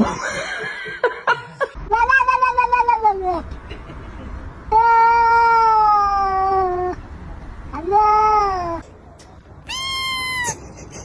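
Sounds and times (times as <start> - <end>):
cat meowing: 7.7 - 8.8, 9.6 - 10.6.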